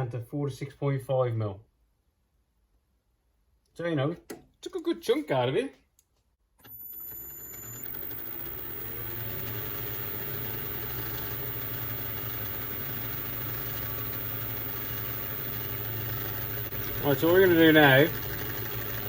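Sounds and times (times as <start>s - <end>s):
metal lathe running: 6.7s - 19.0s.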